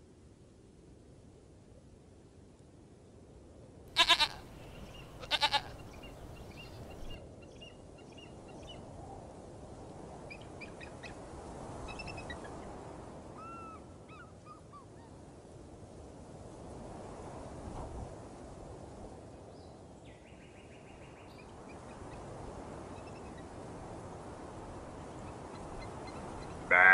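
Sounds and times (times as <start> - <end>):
low outdoor background: 3.9 - 9.8
goat bleating: 4.0 - 6.9
faint bird chirps: 4.2 - 8.8.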